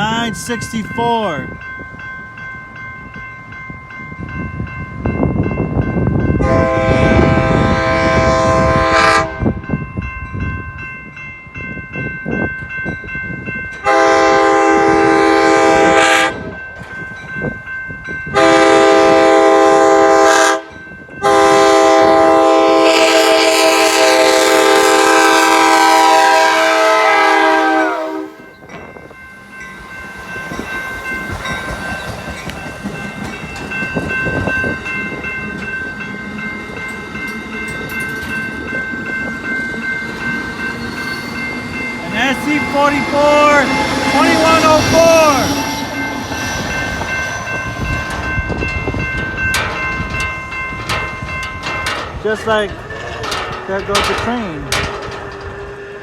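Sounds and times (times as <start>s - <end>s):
train rumble and wheel noise: 0.0s - 56.0s
multi-chime train horn blasts: 6.0s - 9.8s, 13.8s - 16.6s, 18.3s - 28.7s, 39.8s - 50.9s.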